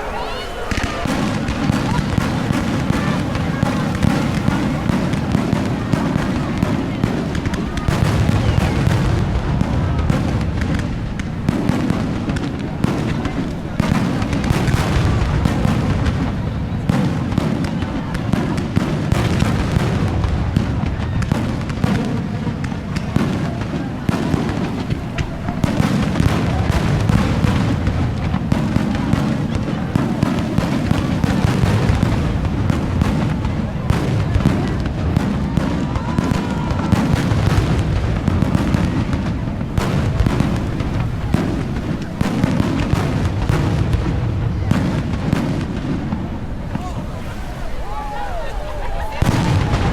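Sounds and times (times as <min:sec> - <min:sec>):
firework whistle: 0:00.0 - 0:09.1
fireworks exploding: 0:00.0 - 0:49.9
rumbling echoes: 0:00.0 - 0:49.9.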